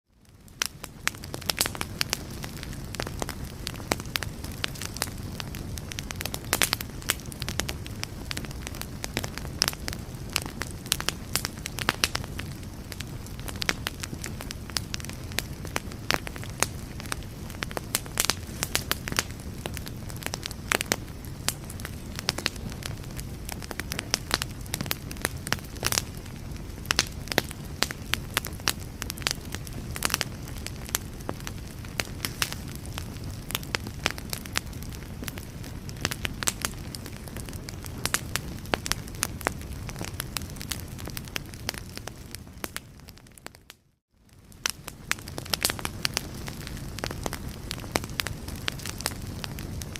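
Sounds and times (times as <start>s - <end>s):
low rumble of flames: 0.1s - 49.9s
wood fire crackling and popping: 0.2s - 49.9s.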